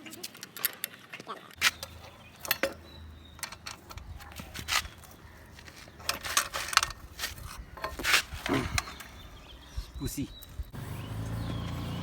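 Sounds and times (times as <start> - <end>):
hand tools clinking: 1.6 - 9.2.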